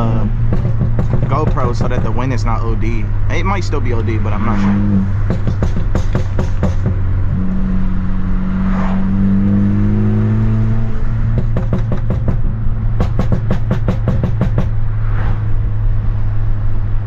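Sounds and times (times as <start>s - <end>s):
exhaust pops and crackles: 0.0s - 7.4s, 11.1s - 14.9s
car engine revving hard: 0.0s - 15.5s.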